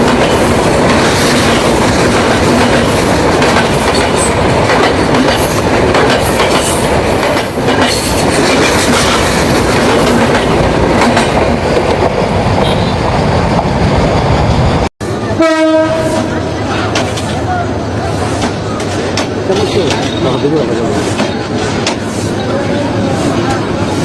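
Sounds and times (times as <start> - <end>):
train wheels clacking on rails: 0.0 - 14.9, 16.0 - 24.0.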